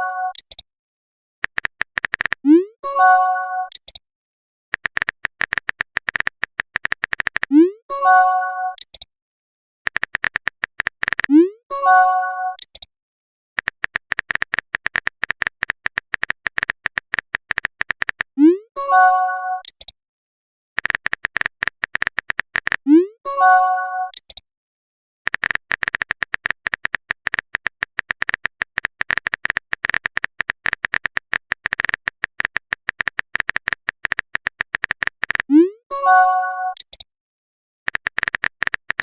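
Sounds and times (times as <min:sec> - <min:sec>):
phone keyboard typing clicks: 0:00.3 - 0:00.6, 0:01.4 - 0:02.6, 0:03.7 - 0:04.0, 0:04.7 - 0:07.6, 0:09.9 - 0:11.5, 0:12.6 - 0:12.9, 0:13.6 - 0:18.4, 0:19.6 - 0:20.0, 0:20.8 - 0:22.9, 0:24.1 - 0:24.4, 0:25.3 - 0:35.5, 0:36.7 - 0:37.1, 0:37.9 - 0:39.0.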